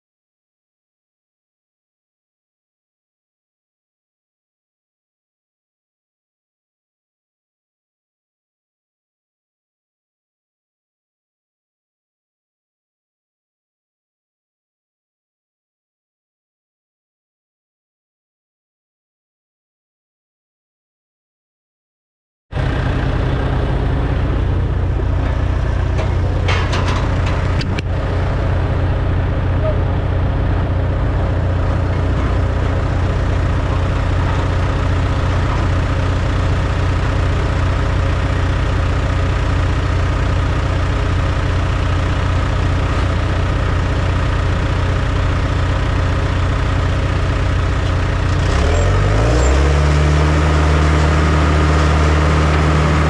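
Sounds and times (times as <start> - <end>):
heavy machinery engine running: 22.6 - 53.0.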